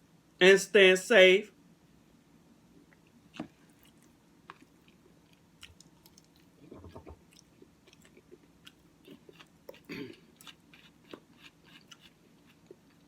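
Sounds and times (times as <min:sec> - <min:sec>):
mouth chewing sounds: 0:02.8 - 0:13.0.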